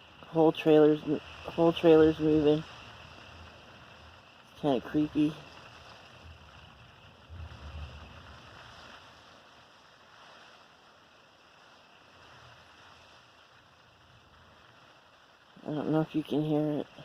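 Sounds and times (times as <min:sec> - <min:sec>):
rain and wind hiss: 0:00.0 - 0:17.0
gust buffeting trailer: 0:01.1 - 0:09.2.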